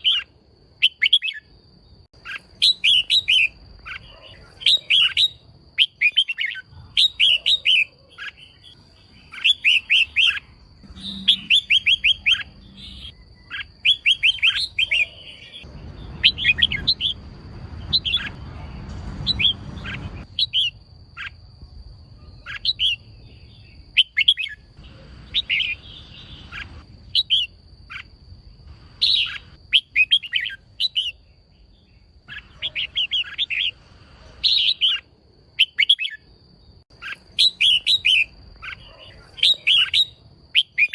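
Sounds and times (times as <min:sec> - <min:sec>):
bird chirping in bursts: 0:00.0 - 0:40.9
low rumbling noise: 0:15.5 - 0:23.9.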